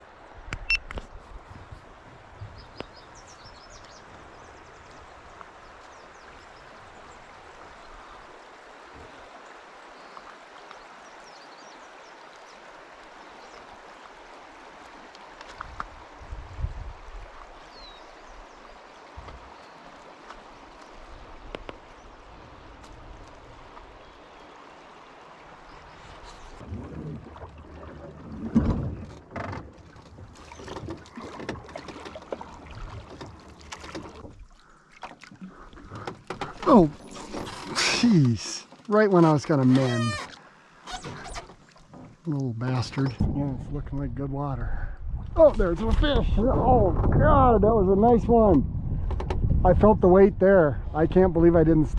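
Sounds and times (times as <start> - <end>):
flowing river water: 0.0 - 47.0
low thumps: 43.1 - 44.3.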